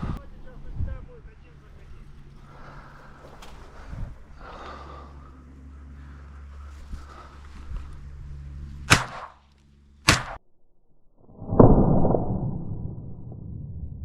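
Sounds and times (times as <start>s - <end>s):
shotgun shots: 8.9s - 9.4s, 10.1s - 10.4s.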